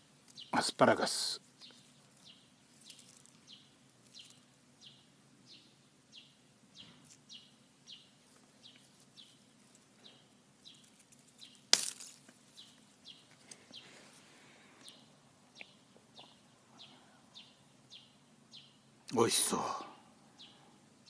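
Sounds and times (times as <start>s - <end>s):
asparagus spear snapping: 11.5s - 12.4s.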